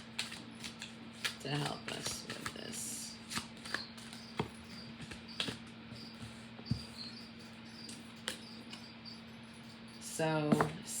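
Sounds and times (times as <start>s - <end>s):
cards clicking and tapping: 0.0s - 5.6s
faint steady hum: 0.0s - 11.0s.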